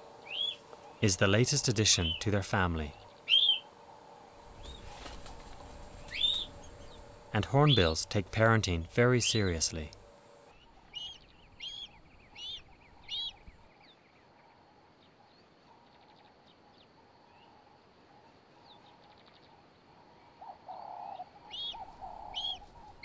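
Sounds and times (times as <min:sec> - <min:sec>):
bird chirping: 0:00.0 - 0:14.4, 0:20.4 - 0:23.0.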